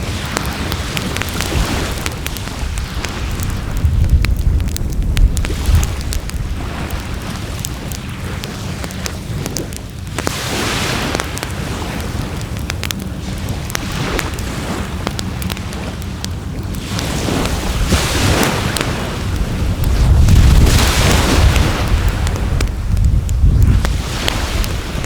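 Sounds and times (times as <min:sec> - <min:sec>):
wood fire crackling and popping: 0:00.0 - 0:25.0
low rumble: 0:01.0 - 0:07.4.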